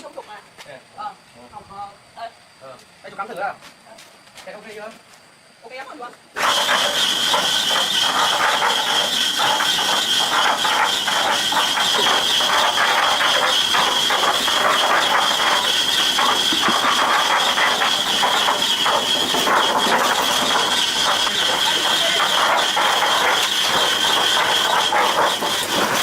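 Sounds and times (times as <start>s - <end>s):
gears clattering: 6.4s - 26.0s
mixer drum turning: 6.4s - 26.0s
motor whine: 6.4s - 26.0s.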